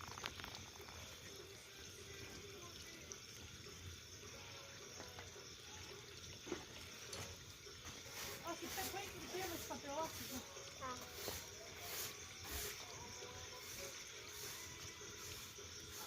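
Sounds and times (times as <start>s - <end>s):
bonfire crackling: 0.0s - 2.2s
fire hissing with pops: 0.0s - 16.0s.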